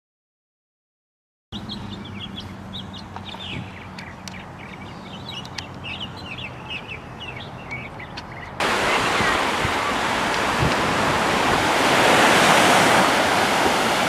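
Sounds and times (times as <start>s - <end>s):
small birds chirping: 1.6s - 11.0s.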